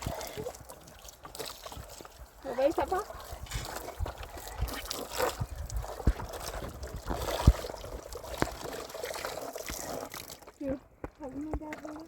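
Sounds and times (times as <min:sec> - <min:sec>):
water sloshing and trickling: 0:00.0 - 0:12.0.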